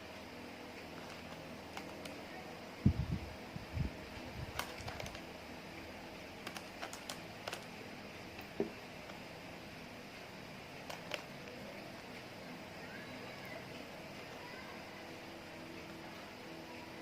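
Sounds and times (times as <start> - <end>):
small sticky clicks and pops: 6.4 - 7.7.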